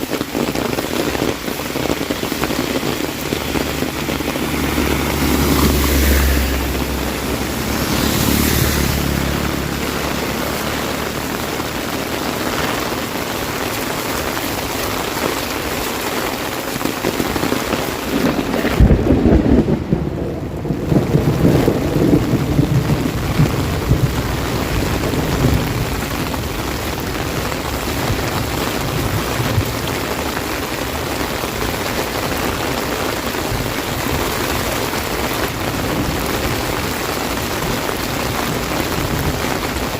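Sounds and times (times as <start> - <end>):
heavy rain drumming on umbrella: 0.0 - 39.9
low rumble: 1.6 - 12.6.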